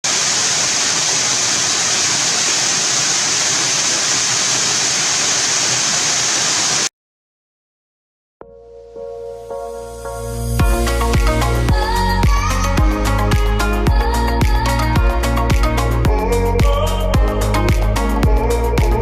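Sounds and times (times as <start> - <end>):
rushing water: 0.0 - 6.9
music: 8.4 - 19.0.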